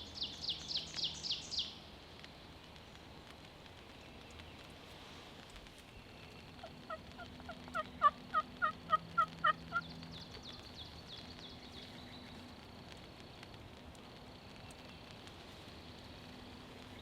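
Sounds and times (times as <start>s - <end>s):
small bird chirping: 0.0s - 1.8s.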